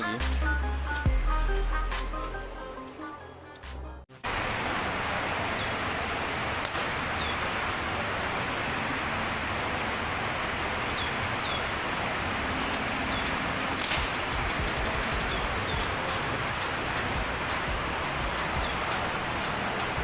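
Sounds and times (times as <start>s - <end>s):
steady outdoor hiss: 4.2s - 20.0s
small birds chirping: 5.4s - 5.8s, 7.0s - 7.6s, 10.6s - 20.0s
sharp snap: 6.6s - 7.0s, 13.8s - 14.4s.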